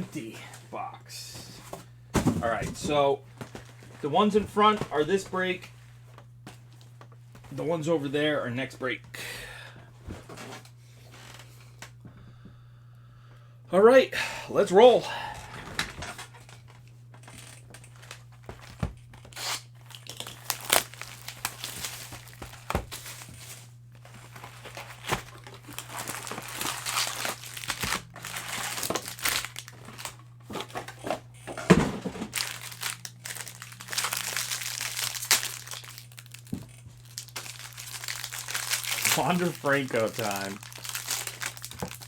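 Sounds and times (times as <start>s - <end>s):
wrappers crinkling and tearing: 16.4s - 31.2s, 32.0s - 42.0s.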